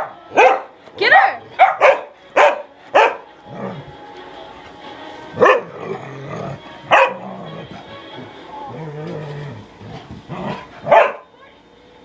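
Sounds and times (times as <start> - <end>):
puppy barking: 0.0 - 3.2, 5.4 - 6.0, 6.9 - 8.0, 10.3 - 11.3.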